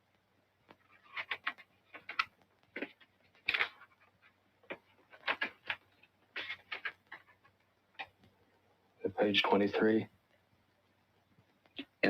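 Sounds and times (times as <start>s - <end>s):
paper pages rustling: 0.7s - 7.5s.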